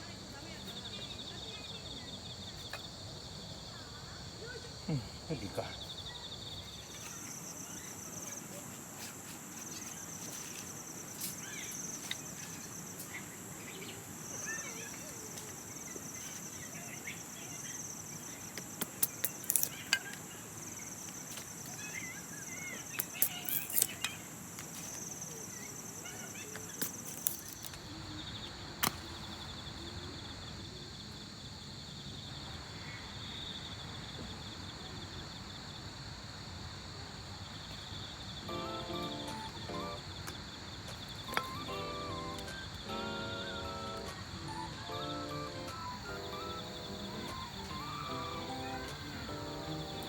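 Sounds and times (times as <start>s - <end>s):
insects chirring: 0.0s - 50.0s
sharp clicks: 18.6s - 20.2s.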